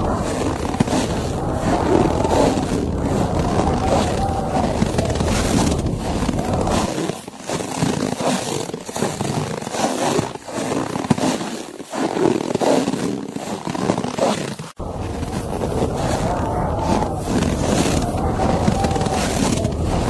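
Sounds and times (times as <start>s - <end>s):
blizzard wind rushing: 0.0s - 6.9s, 14.8s - 20.0s.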